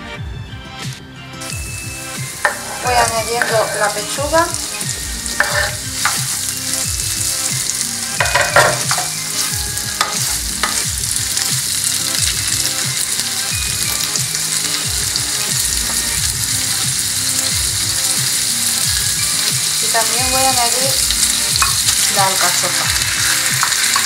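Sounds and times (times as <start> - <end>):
chicken sizzling in a frying pan: 1.5 - 24.0
wooden spoon scraping a pan: 2.4 - 6.6, 8.2 - 10.9.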